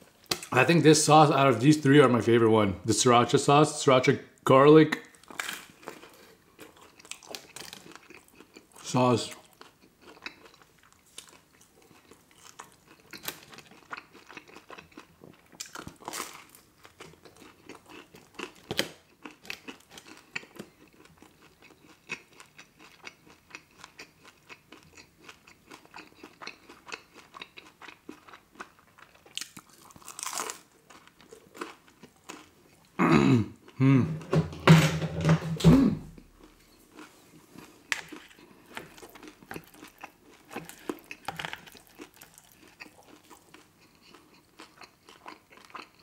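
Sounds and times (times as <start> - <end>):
chewing pizza: 5.0 - 33.8, 36.4 - 46.0
hummed vocal sounds: 33.8 - 34.2
crust crunching: 36.2 - 44.2.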